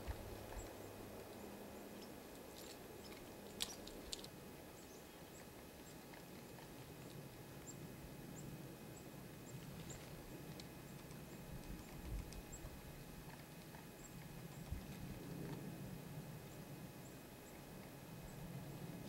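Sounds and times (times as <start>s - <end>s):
small birds chipping: 0.0s - 15.1s
faint low hum: 0.0s - 19.0s.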